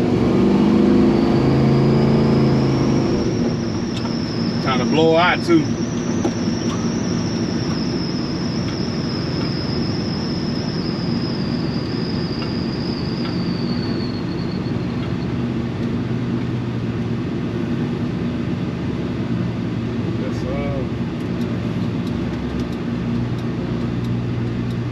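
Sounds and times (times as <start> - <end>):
engine and road drone: 0.0 - 24.9
thin high whistle: 1.2 - 15.5.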